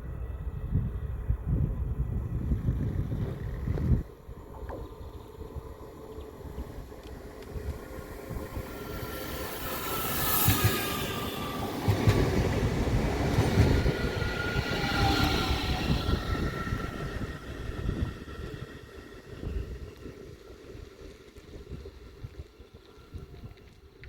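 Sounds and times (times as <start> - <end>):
train wheels rumbling on rail: 0.1 - 24.0
whining tone: 7.0 - 20.1.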